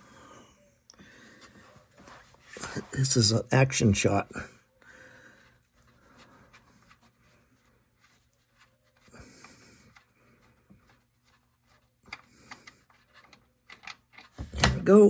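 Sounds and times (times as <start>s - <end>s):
faint clicks and rustles: 4.6s - 14.8s.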